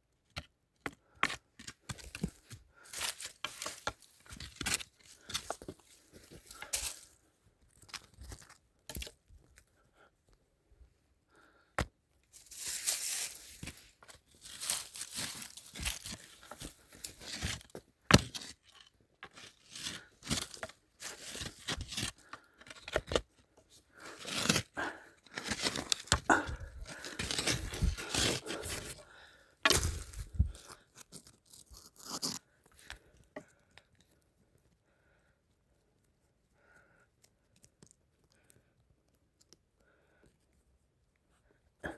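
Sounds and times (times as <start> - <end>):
scraping and crunching soil: 0.3 - 9.6, 11.8 - 34.0
roots tearing: 12.4 - 23.3, 23.9 - 32.5.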